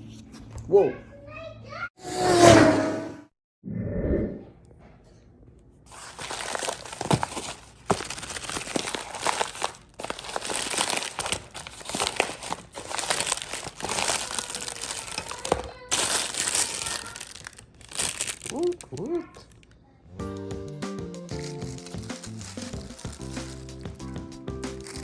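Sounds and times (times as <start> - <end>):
packaging crinkling and rustling: 5.9 - 19.7, 21.3 - 25.0.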